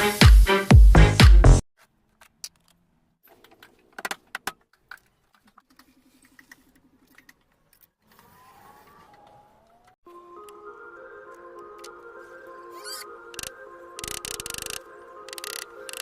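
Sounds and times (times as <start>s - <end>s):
wooden pieces clicking and tapping: 13.4s - 16.0s.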